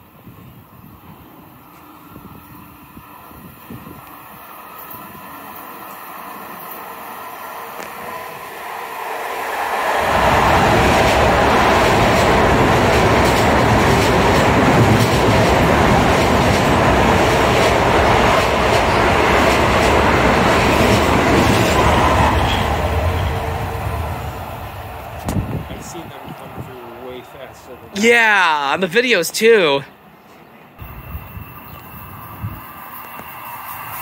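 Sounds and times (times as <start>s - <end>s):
electric train passing: 0.0s - 28.0s, 30.8s - 34.0s.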